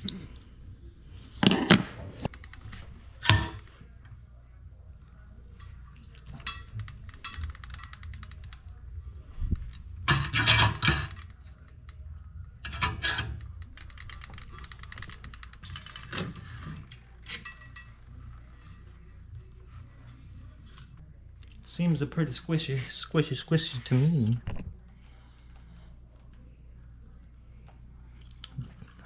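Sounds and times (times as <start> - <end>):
small metal parts clinking: 6.2 - 8.8.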